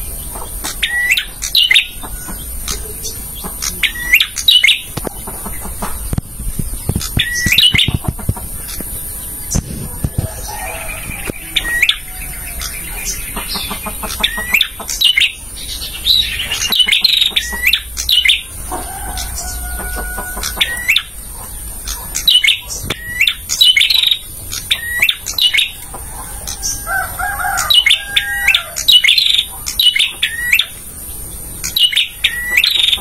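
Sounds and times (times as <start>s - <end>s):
bird singing sharp high chirps: 0.6s - 5.0s, 6.9s - 8.1s, 21.9s - 25.8s, 31.6s - 33.0s
whistled bird notes: 0.6s - 5.0s, 7.0s - 8.0s, 31.6s - 33.0s.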